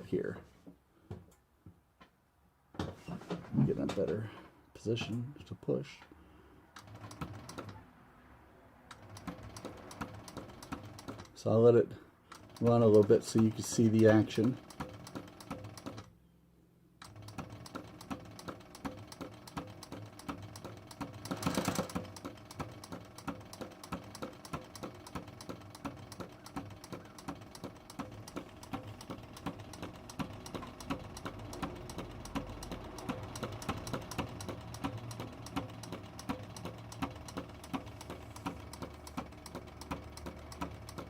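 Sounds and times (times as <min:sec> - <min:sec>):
sewing machine clicking: 0:06.8 - 0:07.8, 0:08.9 - 0:11.6, 0:12.3 - 0:16.1, 0:17.0 - 0:41.0.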